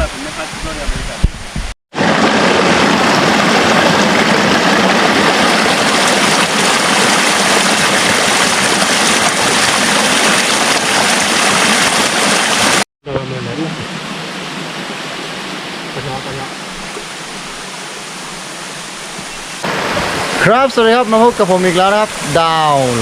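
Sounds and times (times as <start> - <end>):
water rushing: 0.0 - 23.0.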